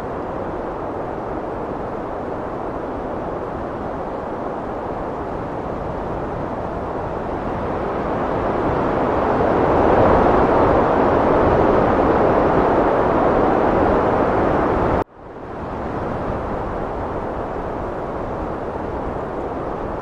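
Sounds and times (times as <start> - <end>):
heavy wind blowing: 0.0 - 20.0.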